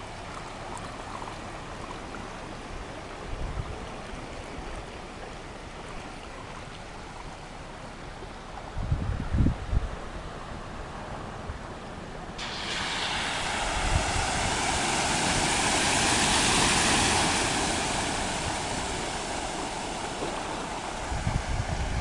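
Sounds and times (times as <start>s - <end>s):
floodwater rushing: 0.0s - 8.8s, 10.0s - 22.0s
wind thumps on microphone: 8.8s - 10.0s, 12.4s - 22.0s.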